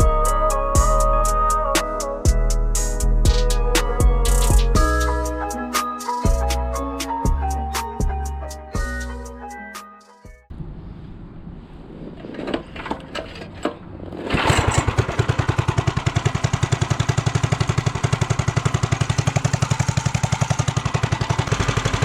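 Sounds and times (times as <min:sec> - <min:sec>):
small engine pulsing: 0:14.1 - 0:22.0.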